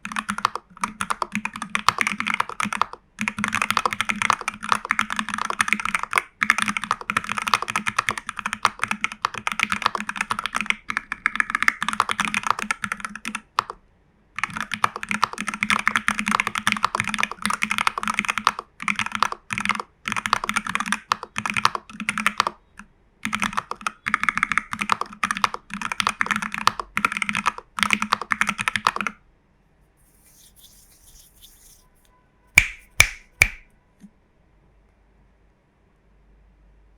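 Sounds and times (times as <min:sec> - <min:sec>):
fast typing on mechanical keyboard: 0:00.0 - 0:13.8, 0:14.4 - 0:22.6, 0:23.2 - 0:29.2.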